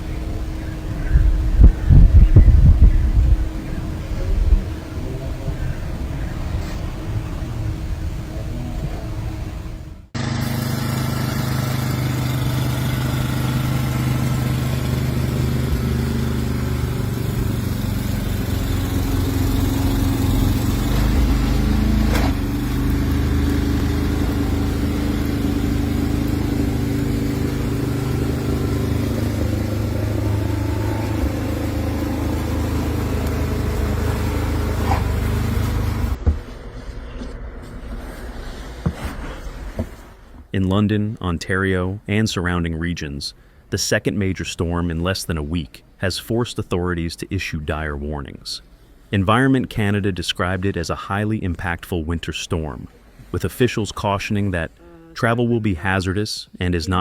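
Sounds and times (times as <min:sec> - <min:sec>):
vehicle engine running: 0:00.0 - 0:40.1.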